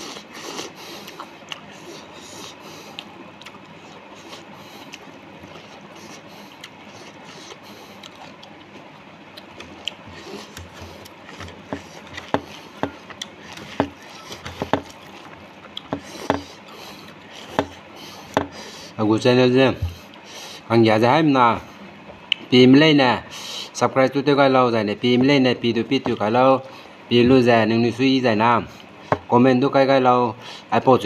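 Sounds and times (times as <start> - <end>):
chewing and lip smacking: 0.0 - 18.3.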